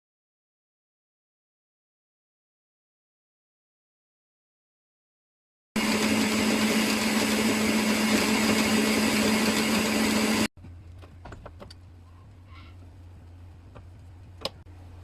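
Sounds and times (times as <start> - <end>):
small motor humming: 5.8 - 10.5.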